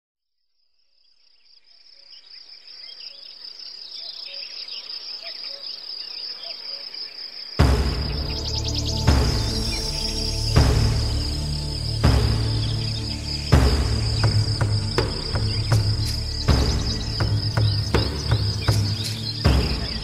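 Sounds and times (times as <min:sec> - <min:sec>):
crickets chirring: 0:00.4 - 0:20.0
bird chirps: 0:00.8 - 0:20.0
loud music: 0:07.6 - 0:20.0.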